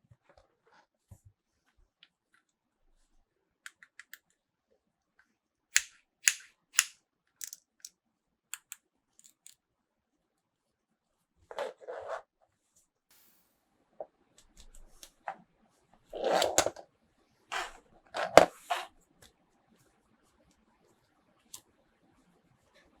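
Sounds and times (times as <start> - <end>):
plastic toy pieces clicking: 5.8 - 7.9, 8.6 - 9.6.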